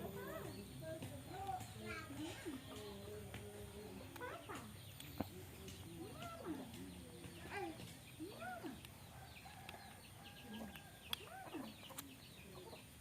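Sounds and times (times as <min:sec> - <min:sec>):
animal calls: 0:09.6 - 0:12.0.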